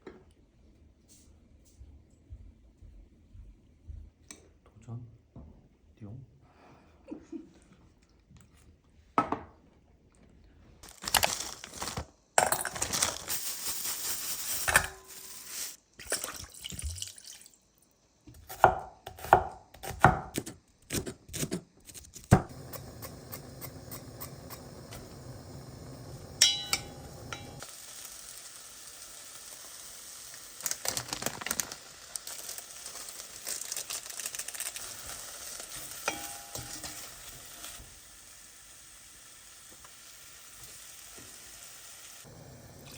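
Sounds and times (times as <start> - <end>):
food sizzling in a pan: 10.8 - 17.6, 22.5 - 42.9.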